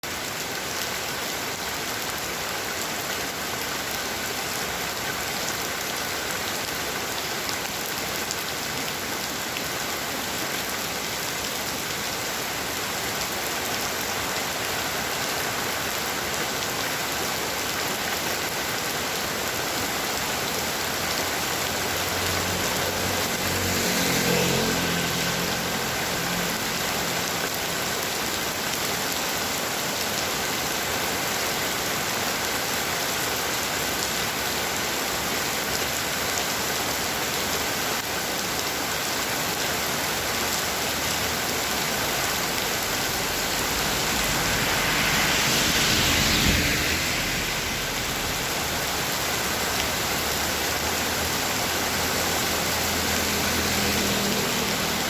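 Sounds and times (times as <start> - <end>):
heavy rain falling: 0.0 - 55.0
low rumble: 41.7 - 49.9.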